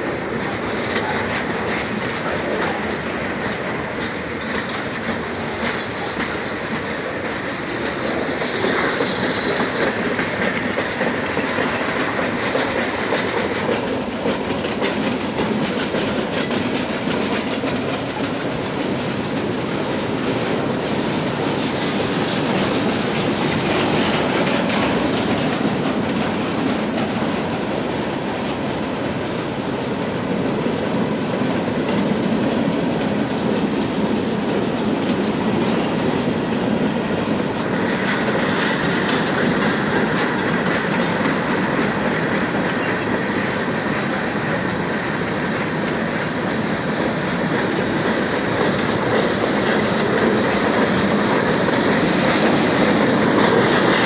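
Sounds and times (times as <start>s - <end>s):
train wheels clacking over rail joints: 0.0s - 54.0s.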